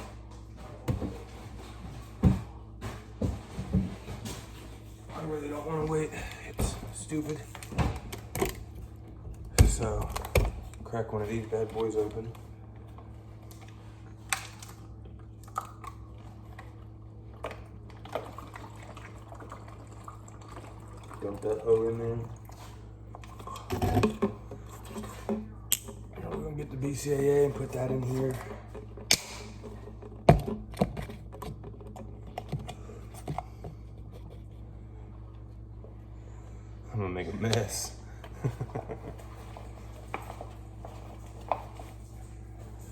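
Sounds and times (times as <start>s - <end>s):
faint low hum: 0.0s - 42.9s
plastic bottles crackling: 0.1s - 34.1s.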